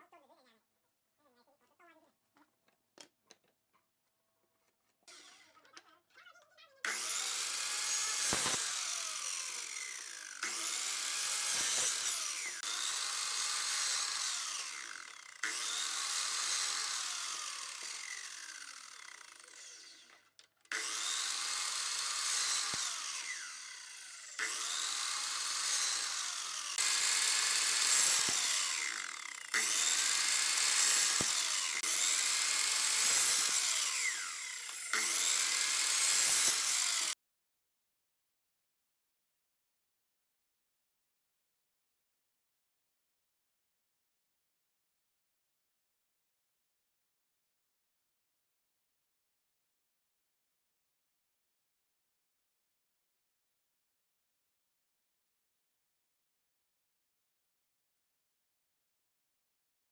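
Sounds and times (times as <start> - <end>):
tool abrading wood: 8.0 - 9.0, 24.3 - 37.2.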